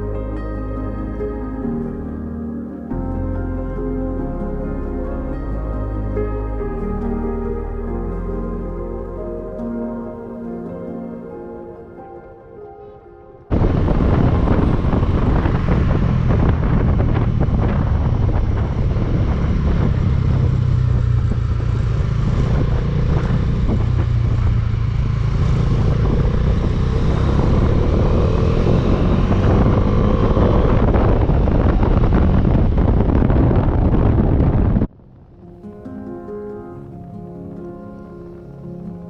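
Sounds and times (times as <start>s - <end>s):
motorcycle engine running: 13.6s - 35.3s.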